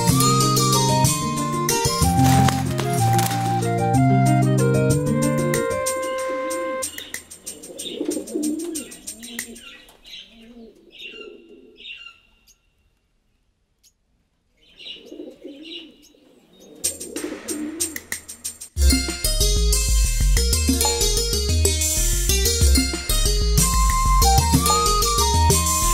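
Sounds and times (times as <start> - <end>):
pigeons cooing: 0.0 - 12.2, 14.6 - 18.6
small birds chirping: 6.8 - 13.0, 13.8 - 17.2.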